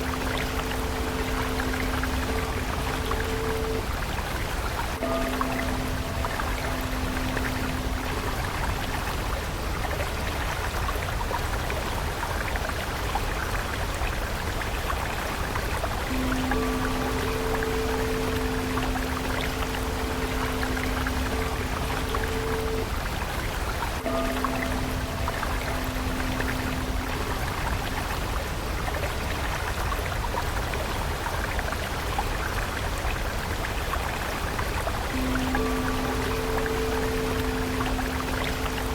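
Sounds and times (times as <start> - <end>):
low held musical tone: 0.0 - 11.7, 15.9 - 30.4, 35.0 - 38.9
stream water flowing: 0.0 - 38.9.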